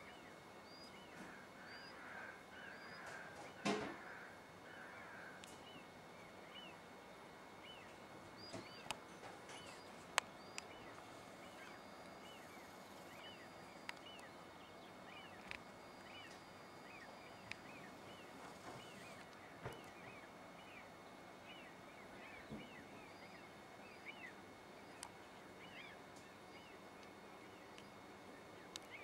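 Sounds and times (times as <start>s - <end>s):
faint steady hiss: 0.0s - 29.0s
bird chirping: 7.6s - 29.0s.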